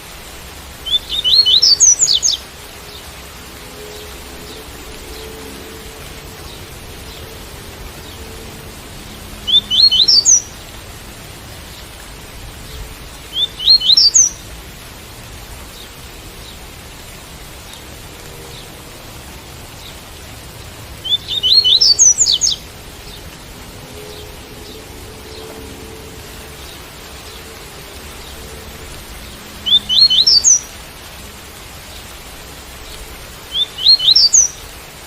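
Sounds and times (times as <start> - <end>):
steady rain hiss: 0.0 - 35.0
bird whistled song: 0.8 - 2.4, 9.5 - 10.5, 13.3 - 14.4, 21.0 - 22.6, 29.6 - 30.7, 33.5 - 34.6.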